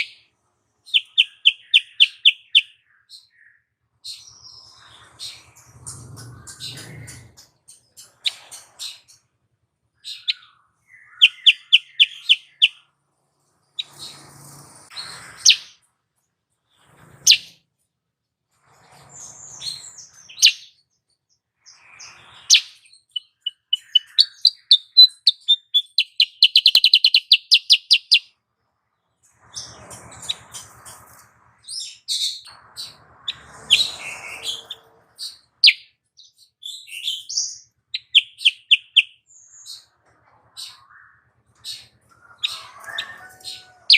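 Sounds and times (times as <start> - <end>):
bird chirps and trills: 0.0 - 9.3, 10.0 - 12.9, 13.5 - 15.8, 16.7 - 17.6, 18.7 - 28.4, 29.0 - 43.9
buzzy bird calls: 0.9 - 3.2, 10.0 - 12.8, 21.7 - 28.3, 36.9 - 39.9.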